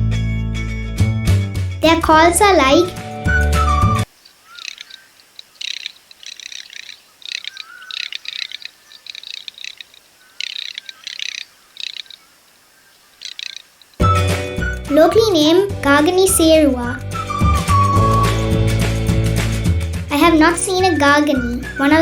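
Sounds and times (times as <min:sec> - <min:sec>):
duck rattling calls: 0:04.2 - 0:14.0.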